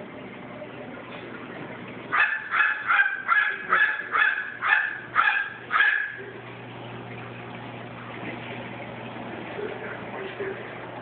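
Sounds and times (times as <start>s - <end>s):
crow imitating dog barks: 2.1s - 6.2s.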